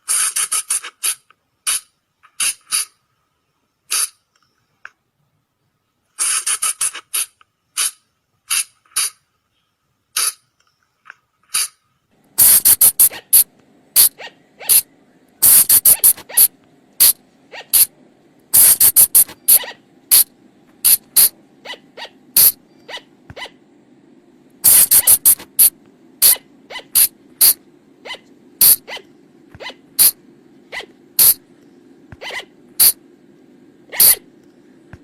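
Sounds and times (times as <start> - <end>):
faint low hum: 0.4 - 35.0.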